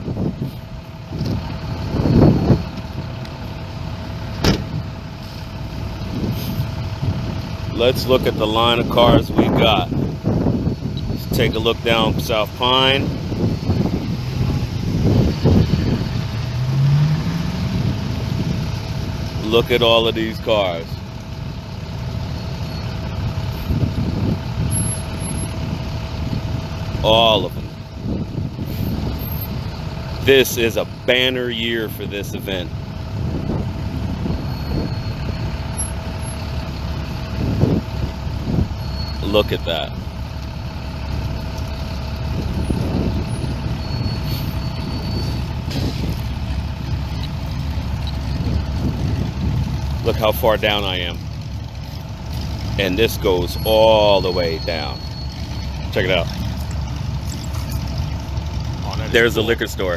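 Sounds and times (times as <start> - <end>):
vehicle engines idling: 0.0 - 59.9.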